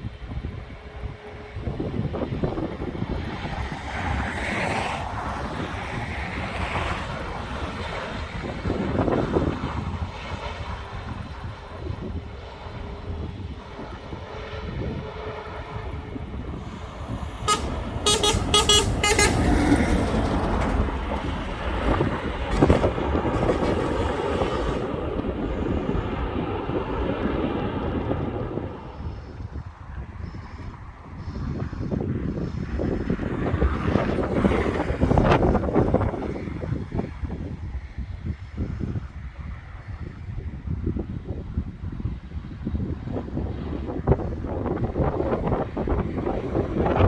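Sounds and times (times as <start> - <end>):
wind on microphone: 0.0 - 47.0
jet rumble: 10.6 - 29.3
short horn-like beeps: 16.6 - 20.1.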